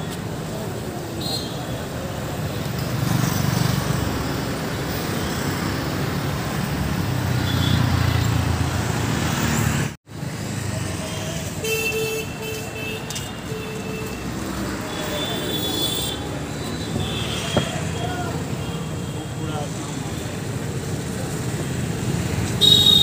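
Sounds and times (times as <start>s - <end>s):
city street traffic: 0.0s - 23.0s
vehicle horn blasts: 22.6s - 23.0s.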